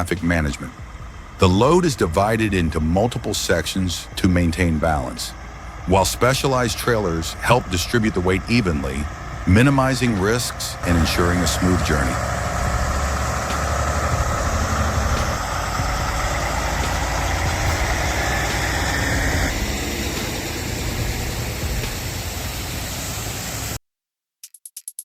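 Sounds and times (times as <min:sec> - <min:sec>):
heavy truck engine rumbling: 0:00.0 - 0:23.8.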